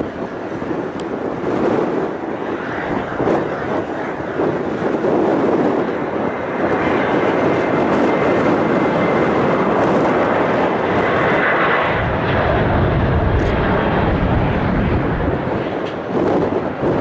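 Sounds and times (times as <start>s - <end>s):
jet engines rushing: 0.0s - 17.0s
deep rumble: 6.7s - 17.0s.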